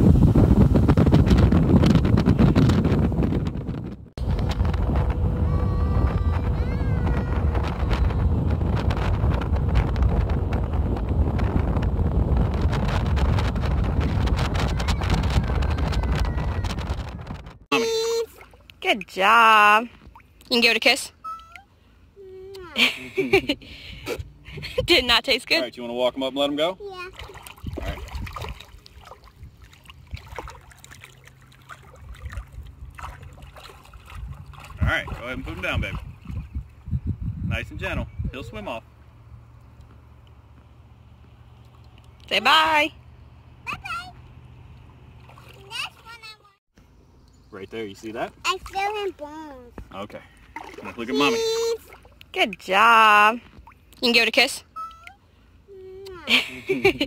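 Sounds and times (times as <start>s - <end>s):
wind buffeting microphone: 0.0s - 18.2s, 23.3s - 25.2s, 26.9s - 46.2s
boat engine hum: 0.0s - 37.0s, 37.8s - 57.0s.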